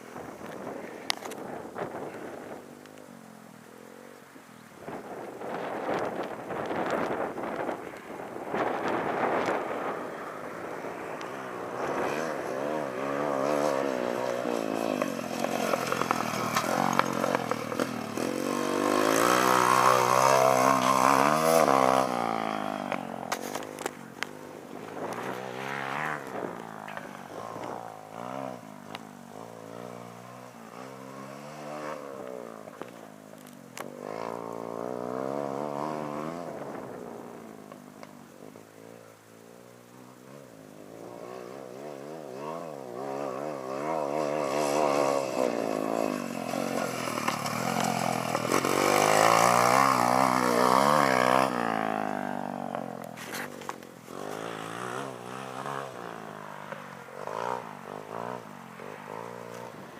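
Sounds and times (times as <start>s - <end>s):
pit bike engine revving: 8.5s - 33.0s, 33.8s - 37.5s, 40.9s - 59.9s.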